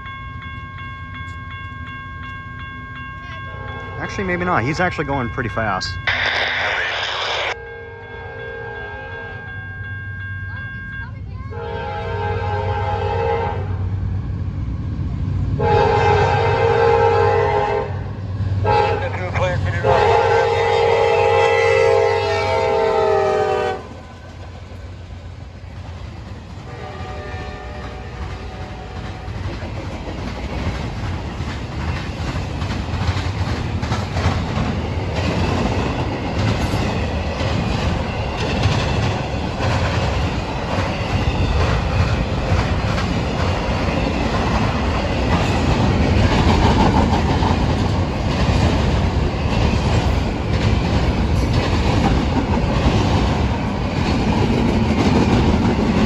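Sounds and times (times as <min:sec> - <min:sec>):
train horn blast: 0:07.6 - 0:09.5, 0:11.5 - 0:13.8, 0:15.6 - 0:18.0, 0:18.6 - 0:19.1, 0:19.8 - 0:24.0, 0:26.6 - 0:29.4
train wheels clacking over rails: 0:24.3 - 0:56.0.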